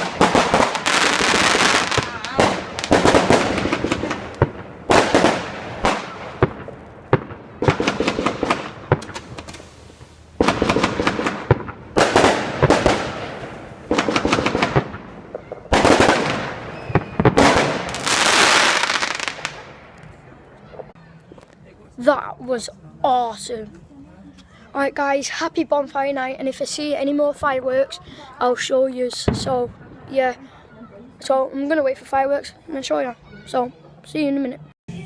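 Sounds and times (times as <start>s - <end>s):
fireworks popping: 0.0s - 21.0s, 29.1s - 30.2s.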